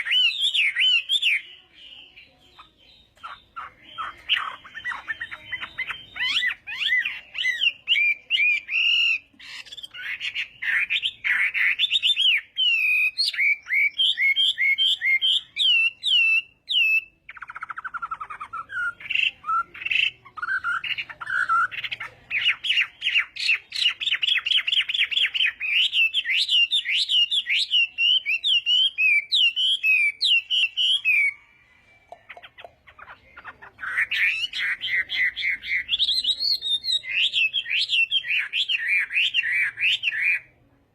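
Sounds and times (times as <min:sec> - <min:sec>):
bird singing whistled phrases: 0:00.0 - 0:31.4, 0:33.4 - 0:40.5.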